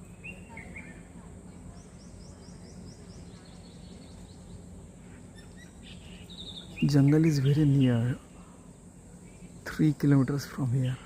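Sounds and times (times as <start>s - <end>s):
bird chirping: 0.0s - 8.3s
faint hiss and hum: 0.0s - 11.0s.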